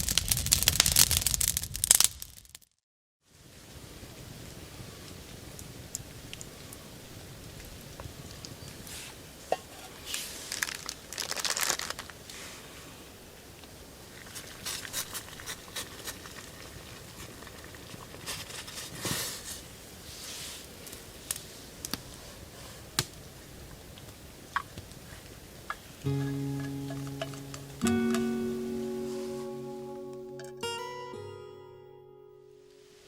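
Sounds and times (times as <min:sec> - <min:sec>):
crinkling and rustling: 0:08.8 - 0:12.4, 0:14.2 - 0:23.2.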